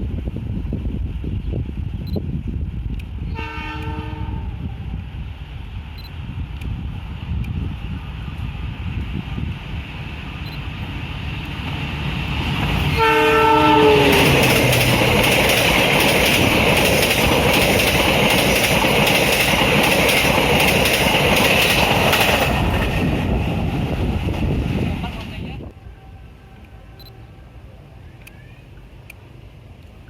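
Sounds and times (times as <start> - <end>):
train passing with loud rumble: 0.0 - 30.0
train horn: 3.3 - 4.8, 13.0 - 14.8, 25.8 - 27.4
wheels clattering over rail joints: 14.1 - 23.2.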